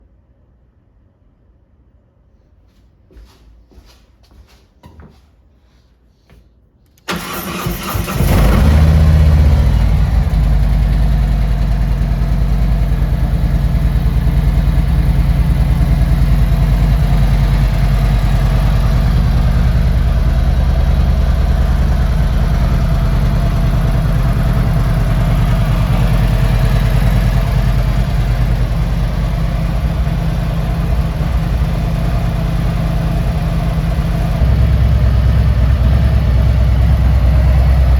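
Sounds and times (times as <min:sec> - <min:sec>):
starter motor cranking: 0:07.1 - 0:09.5
motorcycle engine idling: 0:07.1 - 0:37.9.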